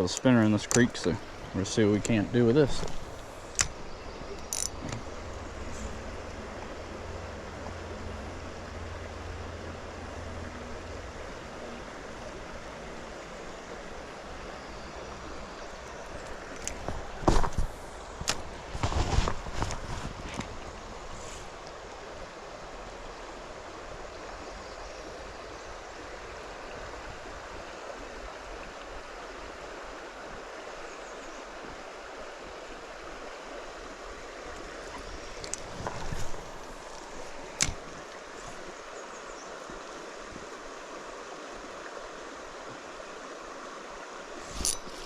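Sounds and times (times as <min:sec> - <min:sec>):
creek water flowing over rocks: 0:00.0 - 0:45.0
sharp clicks: 0:04.4 - 0:05.0.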